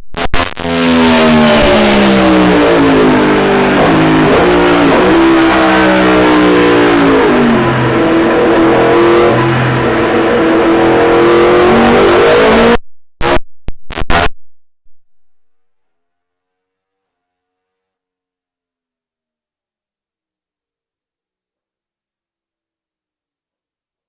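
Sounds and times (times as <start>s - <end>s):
motorcycle engine revving: 0.6s - 12.8s.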